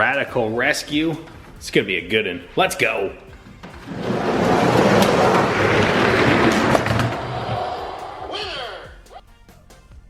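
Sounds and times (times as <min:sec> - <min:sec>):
toy trucks rolling on track: 0:03.5 - 0:08.3.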